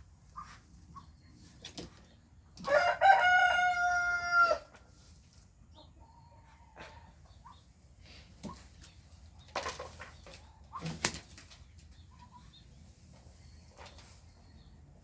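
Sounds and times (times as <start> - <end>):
rooster crowing: 2.7 - 4.7.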